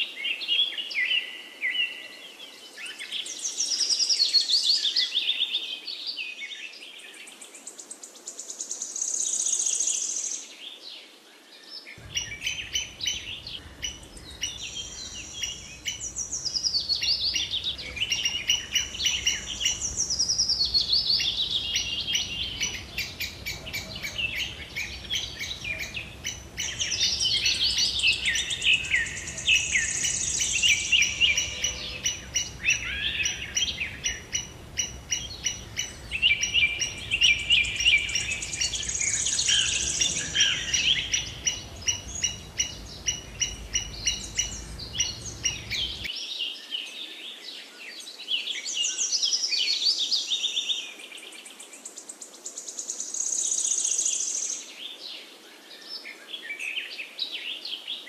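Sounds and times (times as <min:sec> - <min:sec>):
birds singing and chirping: 0:11.6 - 0:58.0.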